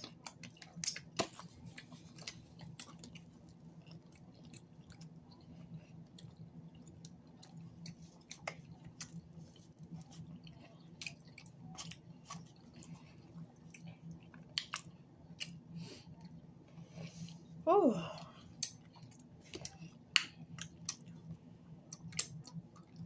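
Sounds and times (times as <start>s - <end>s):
chewing with mouth clicks: 0.0s - 17.5s, 18.4s - 23.0s
faint low hum: 0.0s - 23.0s.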